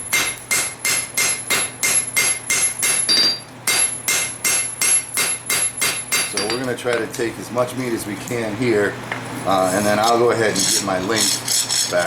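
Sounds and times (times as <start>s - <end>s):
hammer ringing on metal anvil: 0.1s - 6.7s.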